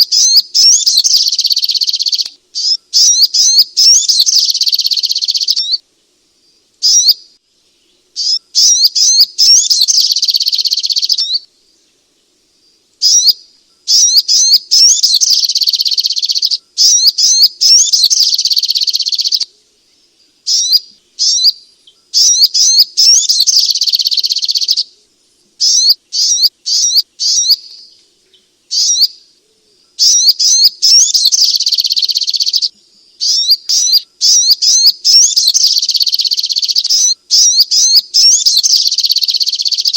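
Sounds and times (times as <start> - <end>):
bird calling rapid sharp notes: 8.2 - 11.4, 22.2 - 24.8, 30.0 - 39.9
bird chips: 30.0 - 39.9.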